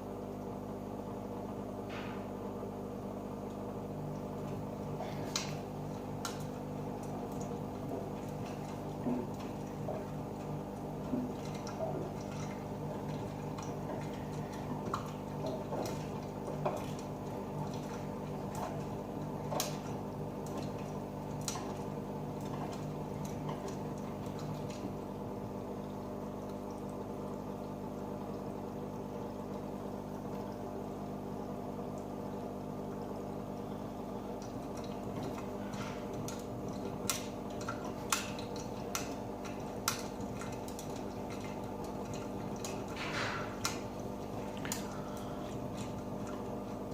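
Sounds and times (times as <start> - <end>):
washing machine motor hum: 0.0 - 46.9
water sloshing in drum: 1.8 - 46.9.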